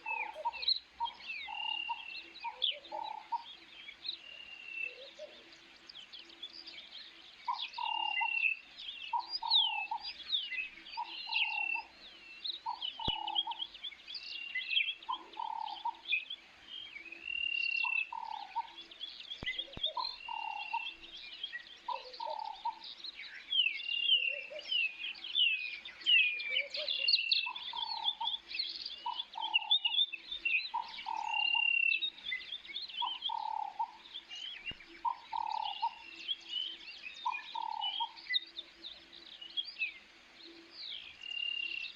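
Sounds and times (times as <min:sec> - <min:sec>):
birds chirping and trilling: 0:00.0 - 0:41.9
low bird call: 0:12.6 - 0:13.7, 0:30.6 - 0:34.0, 0:34.6 - 0:38.4.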